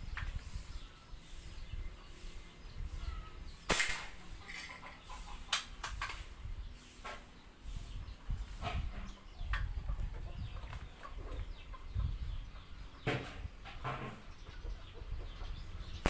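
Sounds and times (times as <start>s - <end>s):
airgun shot crack: 3.7s - 4.5s.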